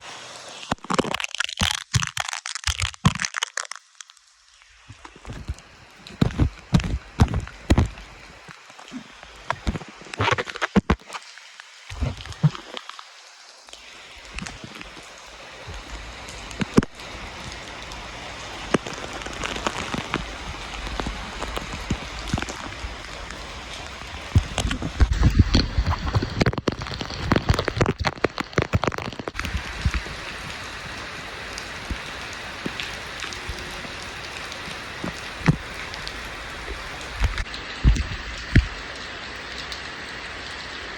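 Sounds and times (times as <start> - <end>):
heavy rain pouring: 0.0 - 40.9
sharp drips and taps: 0.7 - 40.8.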